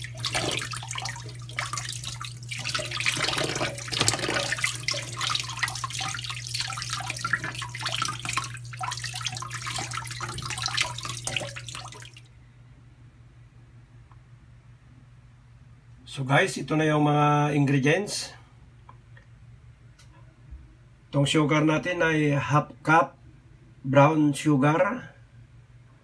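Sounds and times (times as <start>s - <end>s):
tap water splashing into metal bowl: 0.0s - 12.2s
steady low hum: 0.0s - 26.0s.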